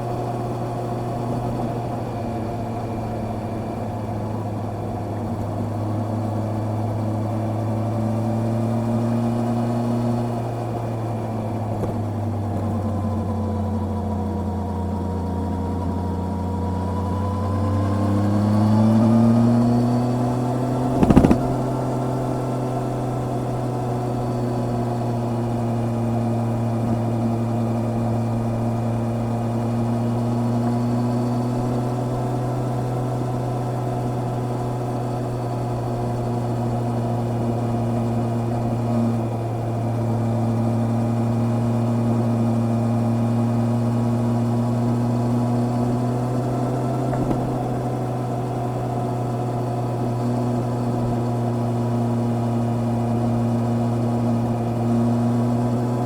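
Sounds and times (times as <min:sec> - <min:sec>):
motorcycle engine droning: 0:00.0 - 0:56.0.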